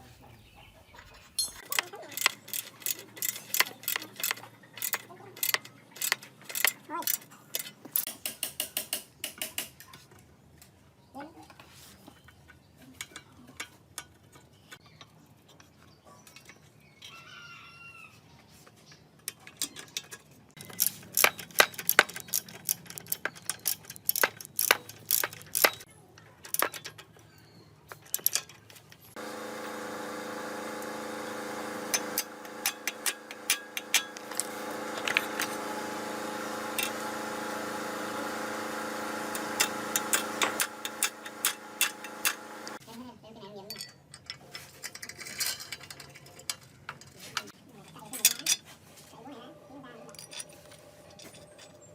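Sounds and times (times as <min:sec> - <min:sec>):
metal parts clinking: 0:01.4 - 0:08.1, 0:19.3 - 0:27.2, 0:27.9 - 0:29.1, 0:31.9 - 0:35.6, 0:43.7 - 0:47.2, 0:50.1 - 0:51.9
small motor running: 0:29.1 - 0:42.8.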